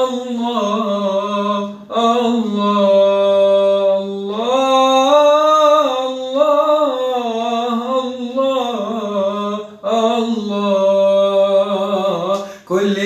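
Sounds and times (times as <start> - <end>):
person singing devotional song: 0.0 - 13.0
singer breath: 12.4 - 12.7.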